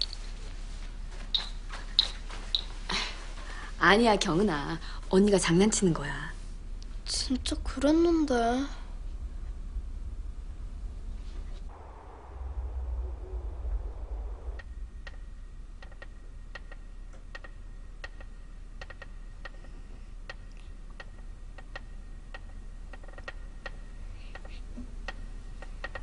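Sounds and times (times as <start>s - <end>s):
low rumble: 3.2s - 24.2s
sharp ticking clicks: 14.6s - 19.7s, 20.3s - 26.0s.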